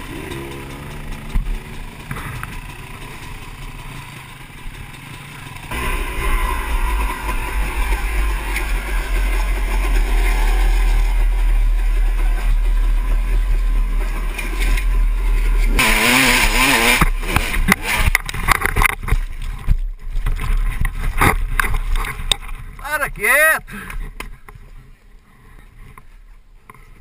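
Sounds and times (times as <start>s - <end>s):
dirt bike engine revving: 0.0s - 18.9s.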